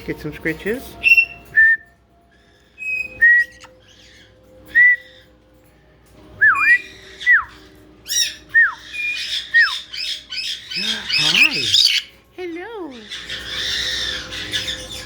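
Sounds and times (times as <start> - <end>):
parrots whistling: 1.0 - 5.4, 6.4 - 12.2, 12.9 - 15.0
parrot squawk: 6.6 - 12.2, 13.0 - 15.0.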